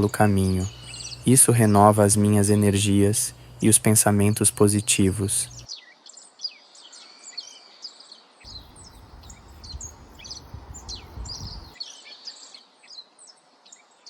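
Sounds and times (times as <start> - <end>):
birds chirping: 0.0 - 7.6, 8.5 - 11.8
low rumble of wind or handling: 8.5 - 11.8.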